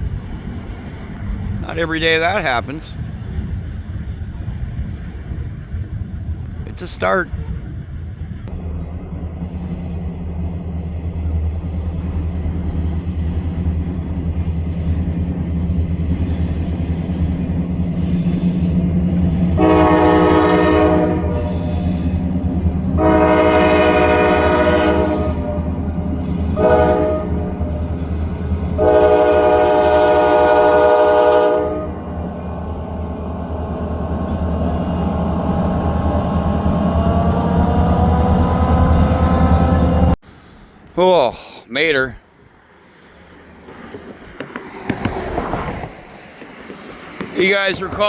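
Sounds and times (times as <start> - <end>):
locomotive engine rumble: 0.0 - 48.0
locomotive horn blasts: 19.6 - 21.9, 23.0 - 27.8, 28.8 - 32.1.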